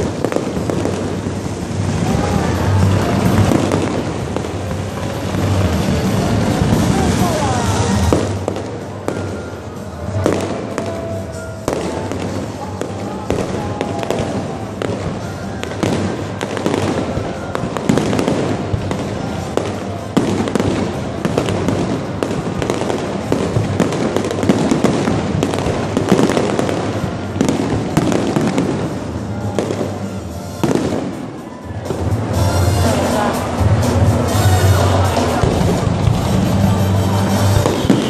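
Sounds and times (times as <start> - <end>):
fireworks bangs and crackling: 0.0 - 38.0.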